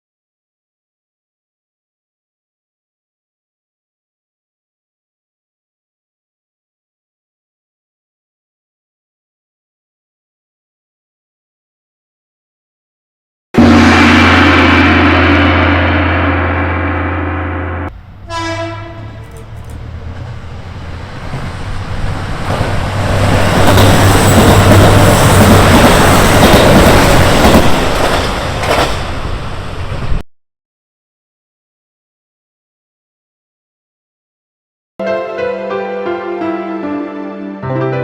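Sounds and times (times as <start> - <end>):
train horn: 13.6 - 19.2
train wheels rushing past: 13.6 - 30.2.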